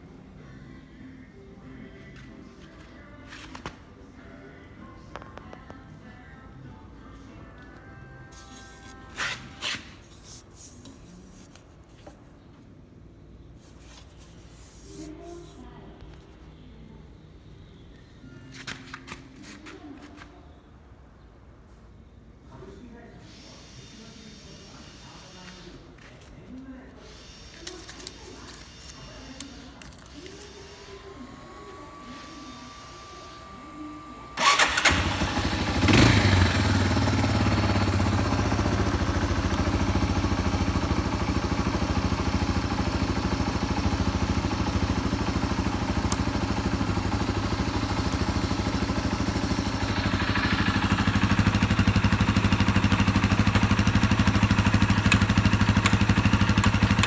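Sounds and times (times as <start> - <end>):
motorcycle engine starting: 33.9 - 57.0
motorcycle engine idling: 34.4 - 57.0.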